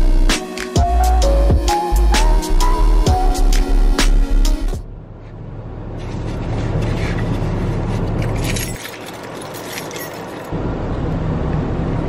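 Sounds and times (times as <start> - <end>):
car engine hum: 0.0 - 12.0
keys jangling: 8.0 - 10.6.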